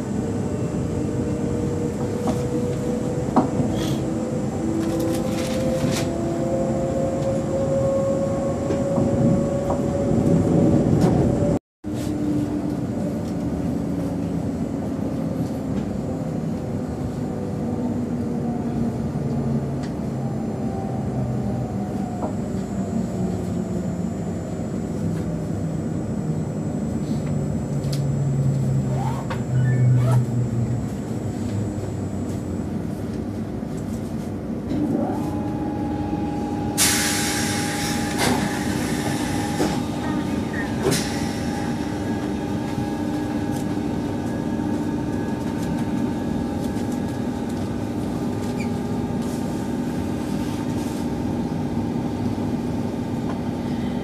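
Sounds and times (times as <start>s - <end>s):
train running rumble: 0.0s - 54.0s
train motor tones: 27.2s - 31.9s.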